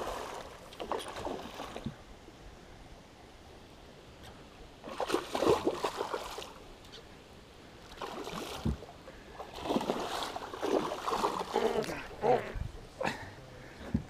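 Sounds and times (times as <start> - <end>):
water splashing: 0.0 - 2.0, 4.8 - 6.7, 7.9 - 12.5.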